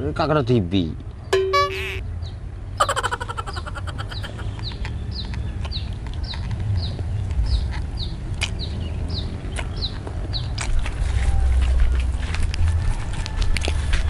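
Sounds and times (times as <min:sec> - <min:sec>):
bird peeping: 0:02.8 - 0:04.6.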